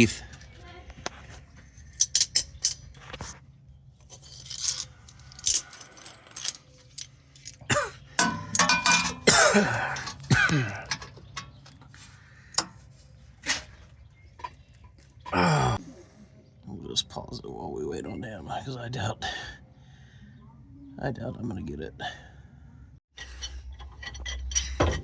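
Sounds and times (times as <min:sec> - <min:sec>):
metal hand tools clinking: 0:04.0 - 0:11.9.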